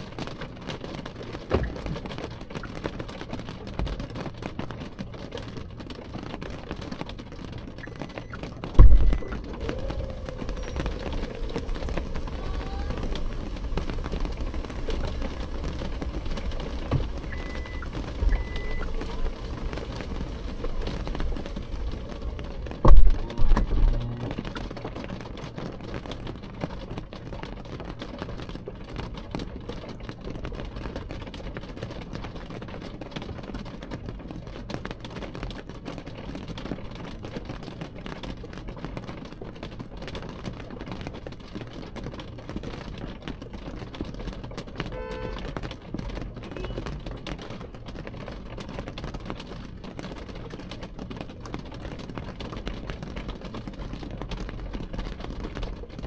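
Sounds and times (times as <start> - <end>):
rain on window glass: 0.0 - 56.0
loud low thuds: 8.6 - 12.4, 22.6 - 24.5.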